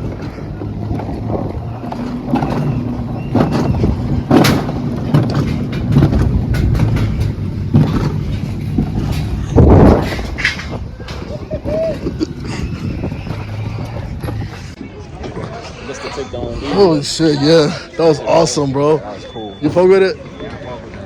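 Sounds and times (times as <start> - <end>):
loud knocks and rattles: 0.0 - 11.4
ride car rumbling on track: 0.0 - 21.0.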